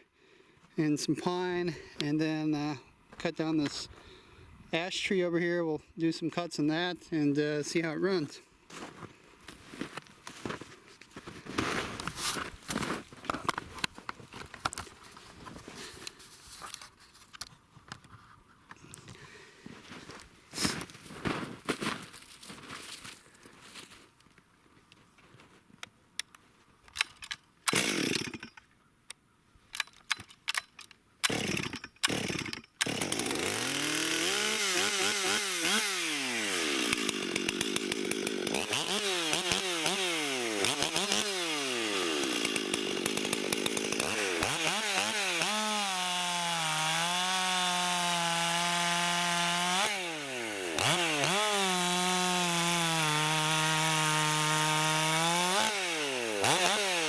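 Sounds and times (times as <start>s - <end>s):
chainsaw revving and cutting wood: 27.7s - 28.6s, 31.2s - 57.0s.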